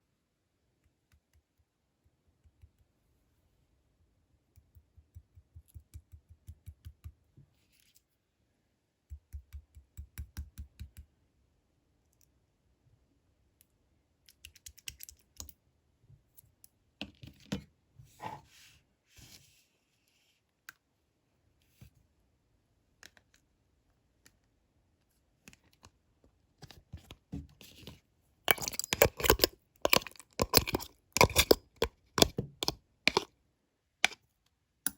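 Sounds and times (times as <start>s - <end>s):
slime squishing: 28.5s - 33.3s.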